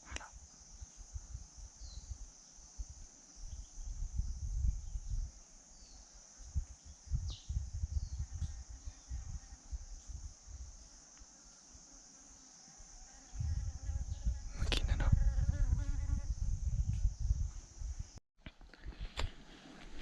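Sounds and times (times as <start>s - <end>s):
low rumbling on microphone: 6.5s - 10.7s, 13.4s - 18.2s.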